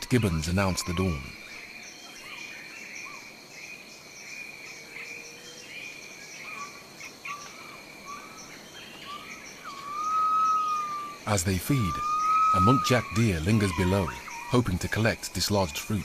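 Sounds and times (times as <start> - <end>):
pulsing insect chorus: 0.0 - 16.0
short rising bird calls: 6.6 - 15.2.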